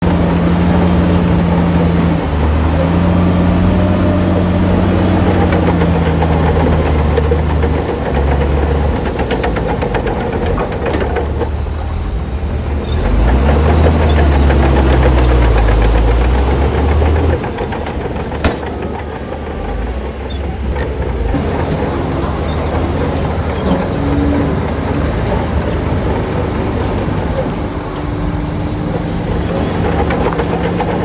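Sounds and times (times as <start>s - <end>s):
heavy diesel engine running: 0.0s - 31.0s
metallic clanking: 13.0s - 31.0s.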